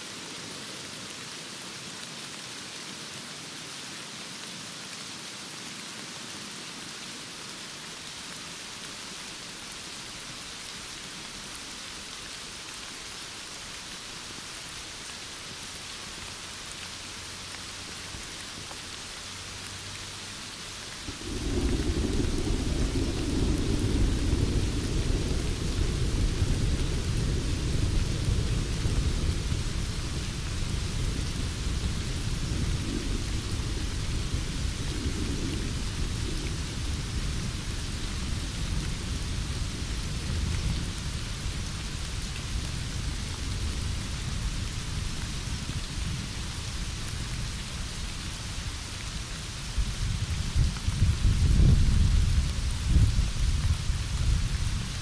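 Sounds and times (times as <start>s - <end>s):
heavy rain: 0.0s - 55.0s
thunder rumbling: 21.0s - 46.4s.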